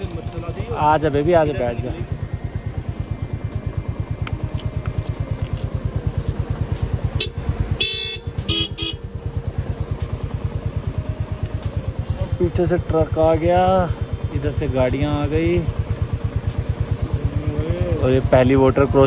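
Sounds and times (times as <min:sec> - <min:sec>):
motorcycle engine idling: 0:00.0 - 0:19.0
vehicle horn honking: 0:07.1 - 0:09.2.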